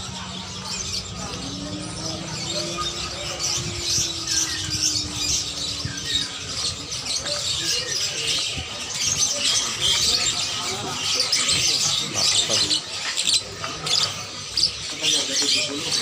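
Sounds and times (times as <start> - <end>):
caged birds chirping and squawking: 0.0 - 16.0.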